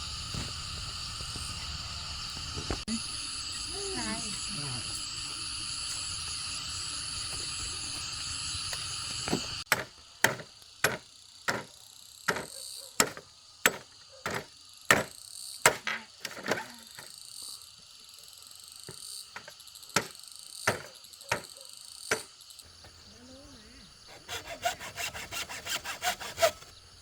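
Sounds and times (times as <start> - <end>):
insects chirring: 0.0 - 27.0
tool chopping bamboo: 9.3 - 11.7, 12.3 - 15.1, 15.7 - 16.7, 24.1 - 26.7.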